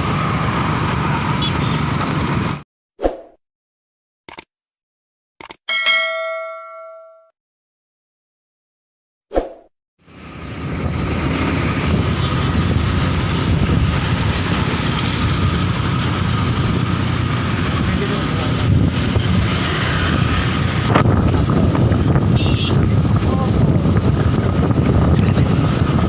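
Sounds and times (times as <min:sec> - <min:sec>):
wind buffeting microphone: 0:10.3 - 0:26.0
motorcycle engine running: 0:10.4 - 0:26.0.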